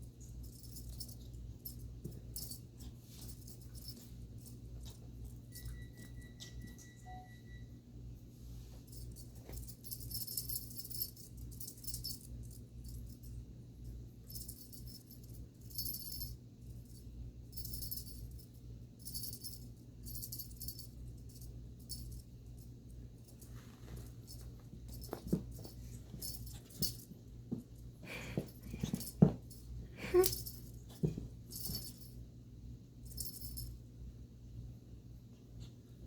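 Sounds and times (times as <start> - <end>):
steady low hum: 0.0 - 36.0
toy bell jingling: 0.4 - 4.6, 5.4 - 7.5, 8.9 - 13.3, 14.2 - 22.3, 24.2 - 27.1, 28.1 - 32.2, 33.1 - 33.7.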